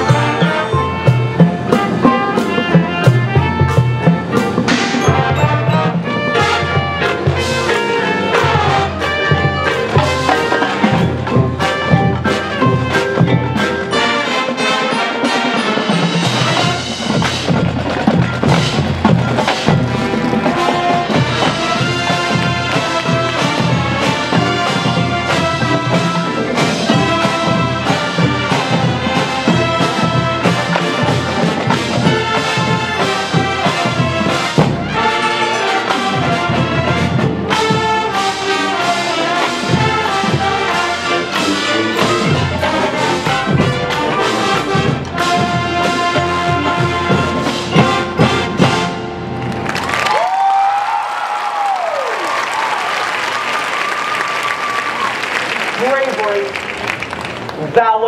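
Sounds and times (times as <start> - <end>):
trumpets and trombones playing: 0.0 - 49.6
marching band drum hits: 15.9 - 49.2.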